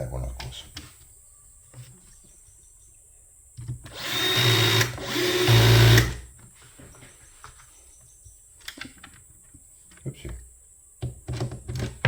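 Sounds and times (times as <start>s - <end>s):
power drill driving screws: 3.9s - 6.2s.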